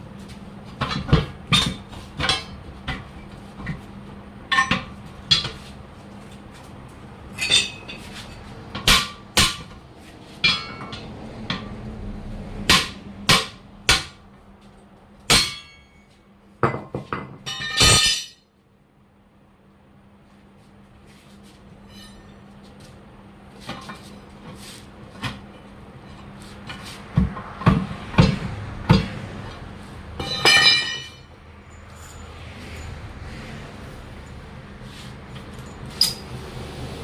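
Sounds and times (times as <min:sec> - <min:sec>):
hammer striking wheel: 0:08.8 - 0:09.8, 0:10.4 - 0:11.8, 0:12.6 - 0:14.2, 0:15.2 - 0:16.1, 0:26.7 - 0:29.2, 0:30.2 - 0:31.3
hand tools clinking on metal: 0:30.2 - 0:33.0.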